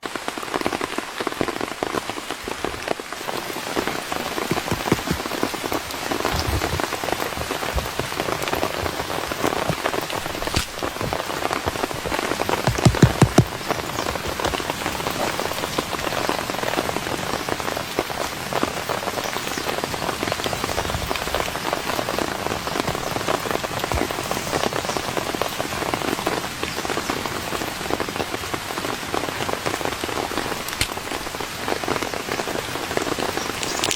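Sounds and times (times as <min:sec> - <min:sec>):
steady rain falling: 0:00.0 - 0:33.9
louder thuds: 0:12.7 - 0:13.7.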